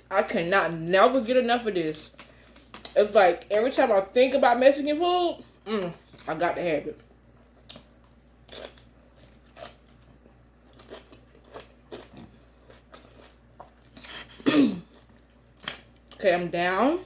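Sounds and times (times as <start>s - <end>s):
crunching food: 7.0s - 16.2s.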